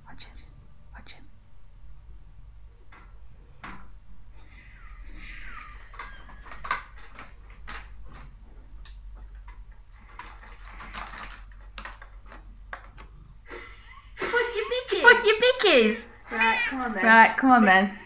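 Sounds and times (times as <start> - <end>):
light clicks and taps: 2.9 - 3.9.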